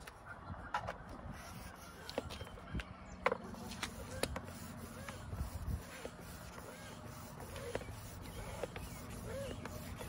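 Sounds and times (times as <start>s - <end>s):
hand air pump inflating tire: 1.4s - 2.5s, 3.4s - 10.0s.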